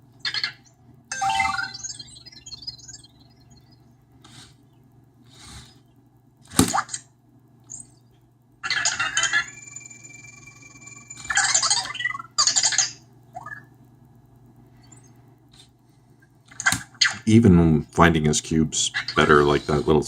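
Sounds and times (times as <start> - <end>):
robot electronic chirps and squawks: 0.2 - 4.5, 8.6 - 13.7.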